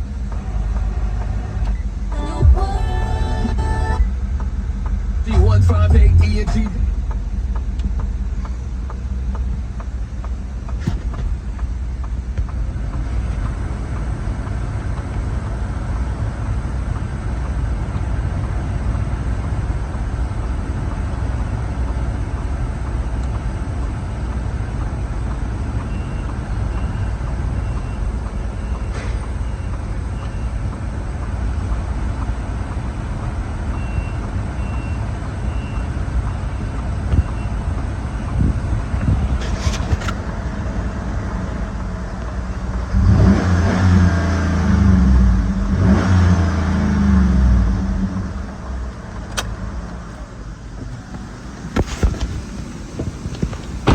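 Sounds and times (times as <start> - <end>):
backup alarm beeping: 0.0 - 8.8
low engine rumble: 0.0 - 53.9.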